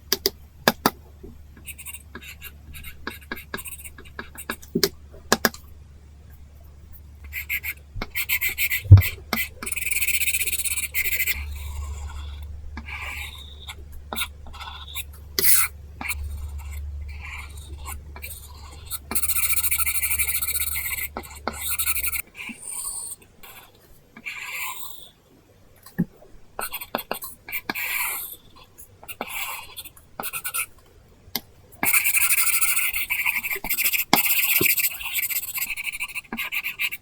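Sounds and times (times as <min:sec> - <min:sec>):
low steady hum: 0:00.0 - 0:24.2
stylus scratching on screen: 0:01.6 - 0:05.5, 0:07.2 - 0:25.2, 0:31.8 - 0:37.0.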